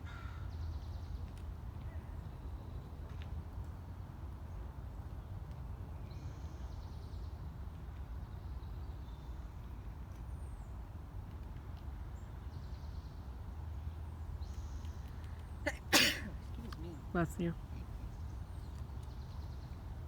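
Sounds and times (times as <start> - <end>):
low outdoor rumble: 13.4 - 20.0.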